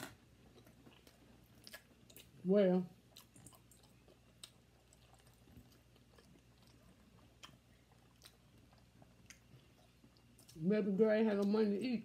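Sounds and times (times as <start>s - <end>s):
faint chewing clicks and smacks: 0.0s - 2.4s, 3.0s - 10.7s.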